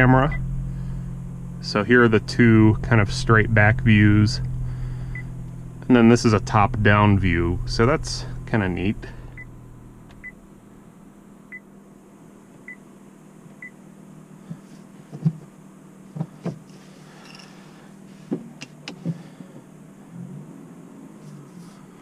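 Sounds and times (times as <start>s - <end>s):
car engine idling: 0.0s - 20.1s
clicks of cabin controls: 18.3s - 19.2s.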